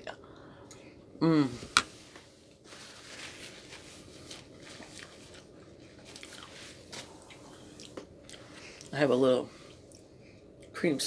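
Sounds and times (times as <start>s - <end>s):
chewing and eating: 3.7s - 9.0s, 9.6s - 10.8s.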